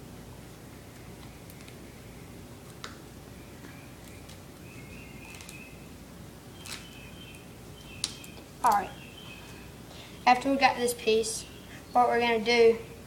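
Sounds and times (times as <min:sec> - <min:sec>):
low steady hum: 0:00.0 - 0:13.0
duct tape squeaking: 0:04.1 - 0:05.8, 0:06.5 - 0:08.4.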